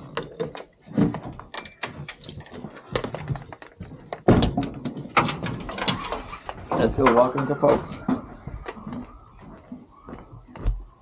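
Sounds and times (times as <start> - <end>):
clicks knocks and rattles at door: 0.0 - 7.5.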